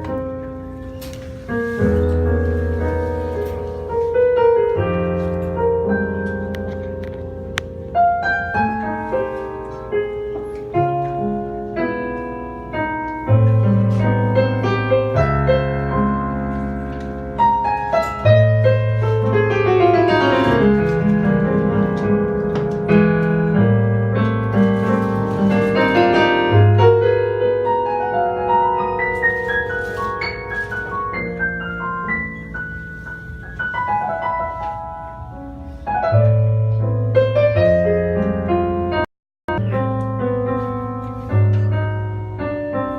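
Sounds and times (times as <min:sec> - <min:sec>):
piano: 0:00.0 - 0:42.9
jazz band playing: 0:13.4 - 0:26.7.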